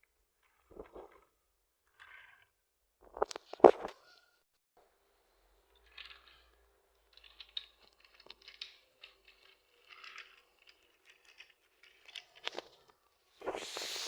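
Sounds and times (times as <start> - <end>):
wooden toy pieces clicking: 5.8 - 12.9.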